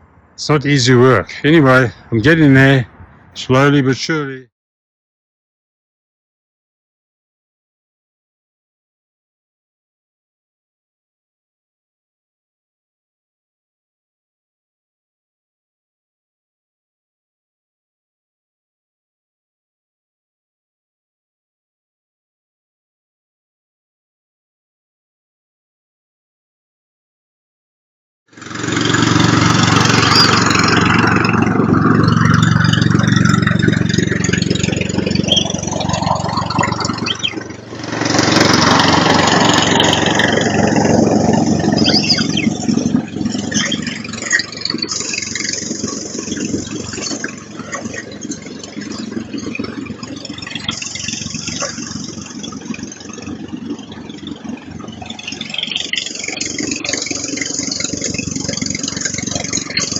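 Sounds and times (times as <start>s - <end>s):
engine running steadily: 0.0s - 4.4s, 28.3s - 59.9s.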